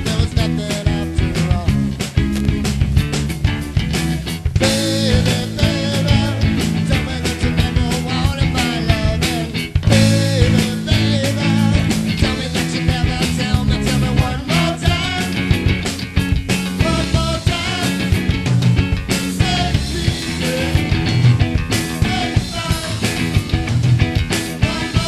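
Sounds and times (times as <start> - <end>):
person singing: 0.0 - 1.8, 4.6 - 15.4, 16.8 - 18.1, 19.4 - 21.0, 22.0 - 23.3, 24.6 - 25.0
rock band playing: 0.0 - 25.0.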